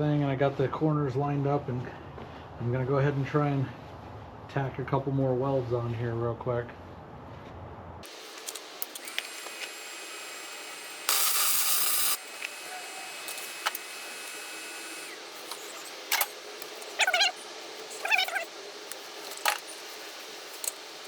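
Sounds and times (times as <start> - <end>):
welding arc hiss and crackle: 8.0 - 21.0.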